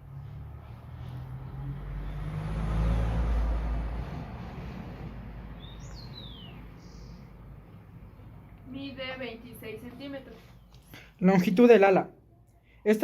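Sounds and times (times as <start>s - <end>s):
vehicle passing by: 0.0s - 10.6s
bird chirp: 5.5s - 8.4s.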